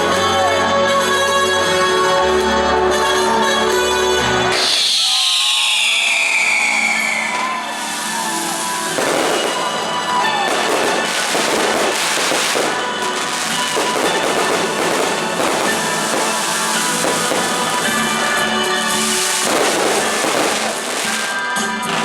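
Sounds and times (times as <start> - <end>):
music playing: 0.0 - 5.1, 6.7 - 22.0
fireworks popping and crackling: 4.5 - 22.0.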